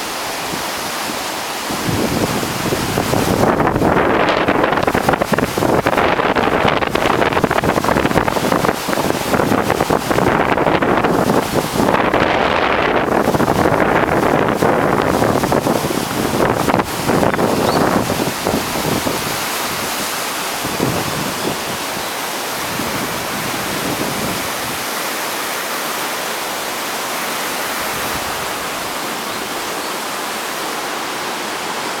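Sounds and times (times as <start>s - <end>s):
flooded river rushing: 0.0s - 32.0s
wind buffeting microphone: 1.6s - 24.9s.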